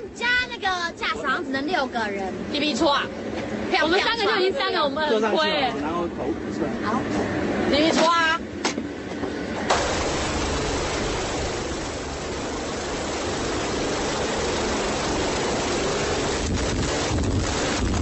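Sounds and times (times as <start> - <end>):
helicopter engine and rotor: 9.7 - 17.8.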